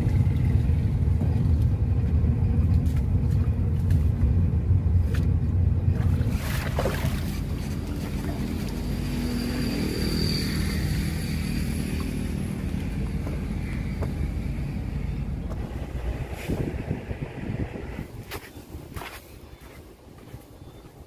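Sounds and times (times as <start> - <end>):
boat engine running: 0.0 - 19.0
faint high whine: 7.9 - 18.1.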